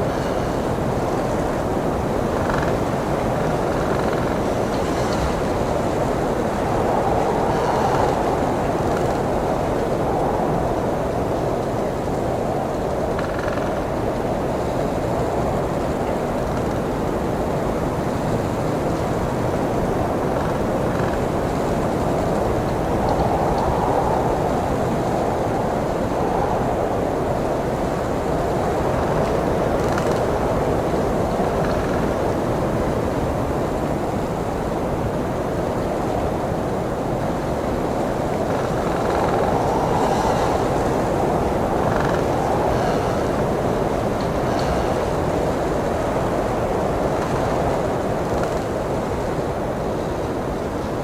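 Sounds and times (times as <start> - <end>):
blizzard wind blowing: 0.0 - 51.0.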